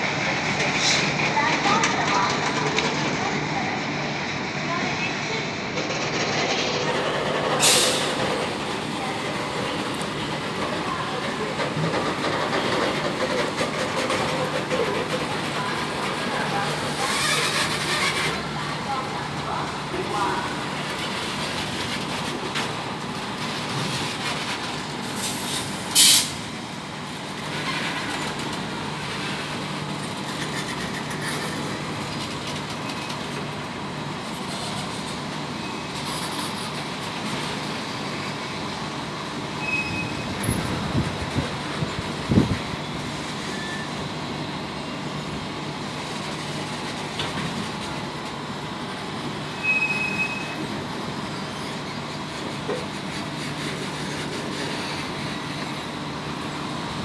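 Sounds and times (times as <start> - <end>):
freight train rumbling: 0.0 - 57.0
train clanks: 0.0 - 57.0
wheel squeals: 5.9 - 21.1, 39.6 - 44.1, 49.6 - 55.8.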